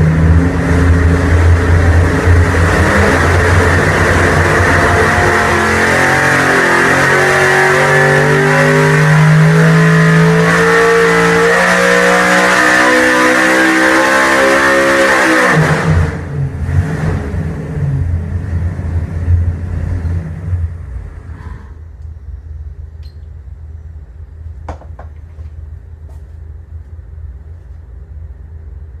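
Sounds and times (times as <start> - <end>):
engine running at full throttle: 0.0 - 21.4.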